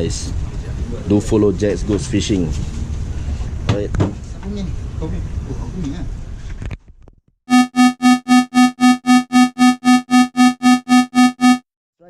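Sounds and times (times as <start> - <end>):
electronic beeps: 7.5 - 11.6.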